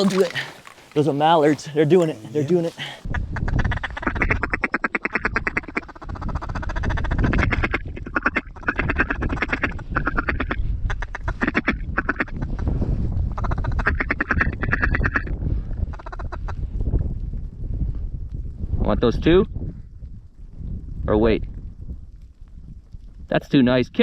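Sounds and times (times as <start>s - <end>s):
duck calls chuckling and quacking: 2.7s - 12.7s, 13.4s - 16.6s
wind rumble on microphone: 3.0s - 24.0s.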